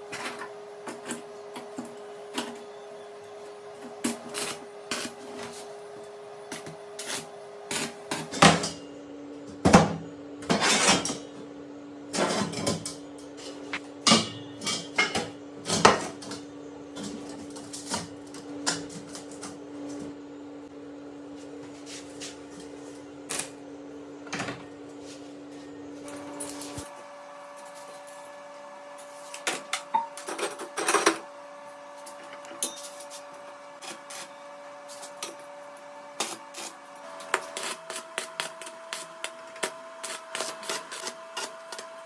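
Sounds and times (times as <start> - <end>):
steady hum: 12.8 - 42.0.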